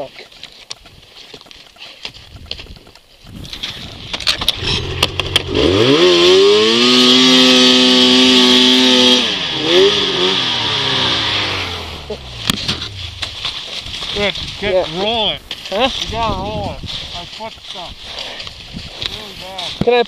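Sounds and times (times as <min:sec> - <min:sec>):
snowmobile engine revving: 0:03.6 - 0:16.1.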